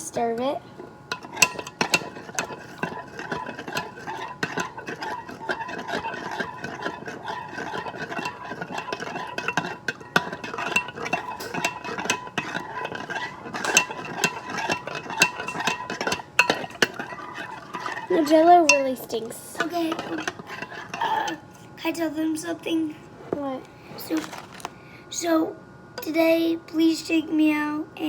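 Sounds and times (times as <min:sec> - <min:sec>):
spoon stirring in a cup: 0:01.0 - 0:21.4.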